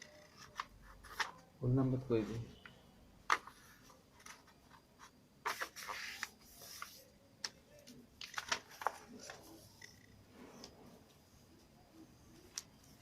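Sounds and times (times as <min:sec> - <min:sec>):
paper rustling: 0:00.0 - 0:01.5, 0:03.3 - 0:09.8.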